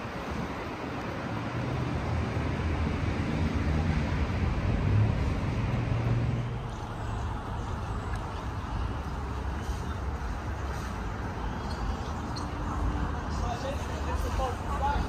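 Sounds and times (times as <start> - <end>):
road noise hiss: 0.0 - 15.0
vehicle engine hum: 0.0 - 15.0.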